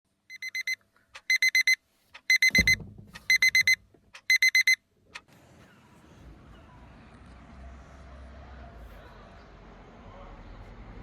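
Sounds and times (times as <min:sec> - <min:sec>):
electronic alarm beeping: 0:00.3 - 0:04.8
dull thump: 0:02.5 - 0:03.8.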